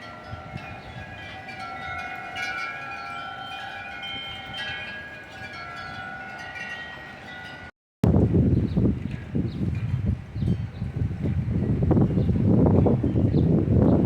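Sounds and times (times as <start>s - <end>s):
wind chimes ringing: 0.0s - 7.7s, 9.7s - 11.0s.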